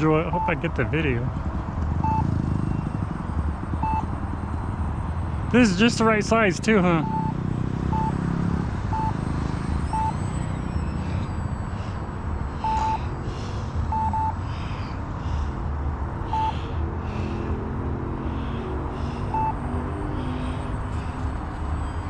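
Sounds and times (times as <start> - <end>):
short electronic beeps: 0.0 - 1.2, 2.0 - 14.5, 16.3 - 16.6, 19.3 - 22.0.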